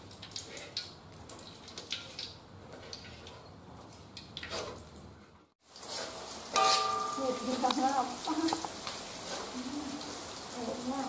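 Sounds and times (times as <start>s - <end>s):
onions sizzling in hot oil: 5.6s - 11.0s.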